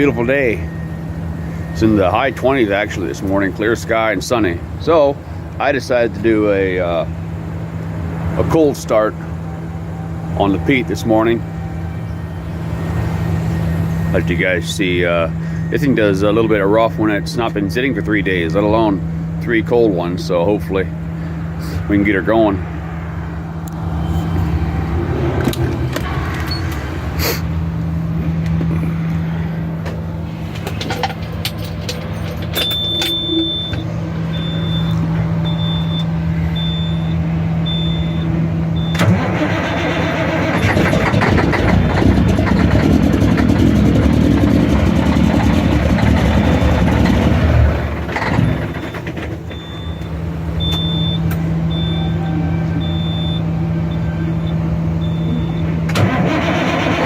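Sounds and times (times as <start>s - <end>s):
dashboard warning beep: 0.0s - 3.7s, 26.4s - 26.9s, 32.2s - 39.1s, 48.3s - 55.8s
diesel truck engine starting and idling: 0.0s - 57.0s.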